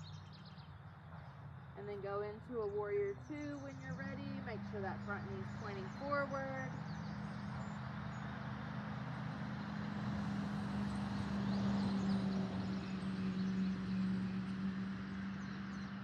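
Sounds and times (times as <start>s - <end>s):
birds chirping faintly: 0.0s - 16.0s
engine humming: 0.0s - 16.0s.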